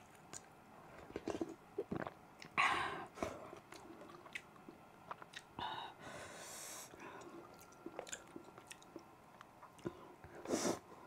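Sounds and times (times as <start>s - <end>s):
soft chewing: 0.0s - 5.6s, 6.9s - 10.5s
breathy hiss: 5.6s - 7.5s, 10.0s - 11.0s.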